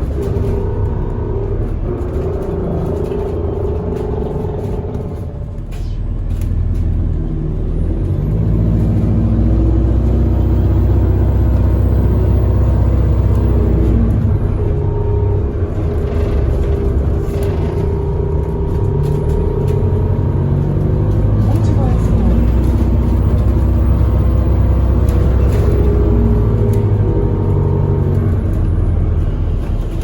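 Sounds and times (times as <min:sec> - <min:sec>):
bus engine and road rumble: 0:00.0 - 0:30.0.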